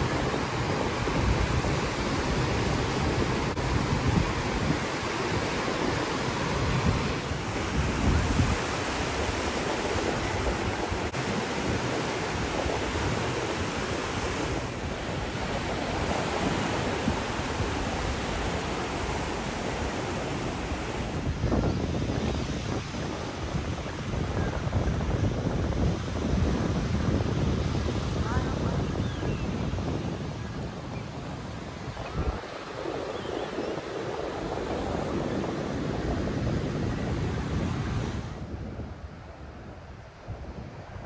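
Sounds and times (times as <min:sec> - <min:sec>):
small waves breaking: 0:00.0 - 0:21.4
wind buffeting microphone: 0:00.0 - 0:41.0.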